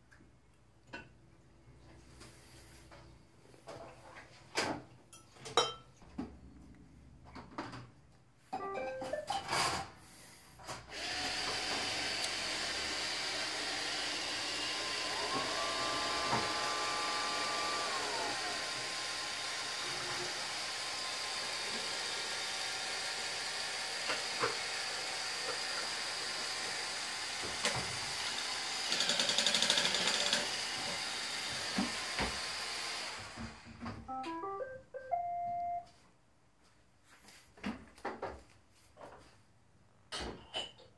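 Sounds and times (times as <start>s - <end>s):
robot vacuum whirring: 10.9s - 33.6s.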